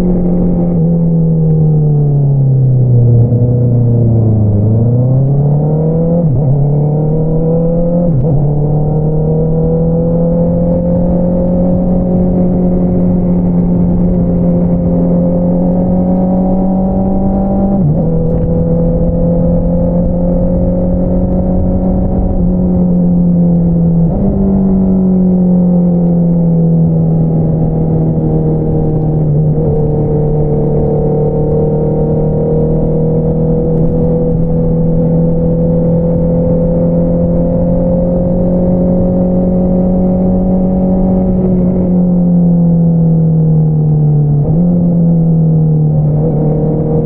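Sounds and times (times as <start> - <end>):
motorcycle engine revving: 2.9 - 47.0.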